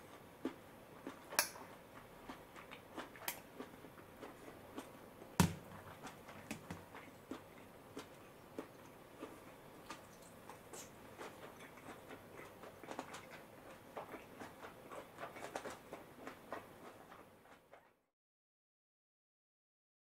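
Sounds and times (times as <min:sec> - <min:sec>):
wet chewing clicks and smacks: 0:00.0 - 0:17.7.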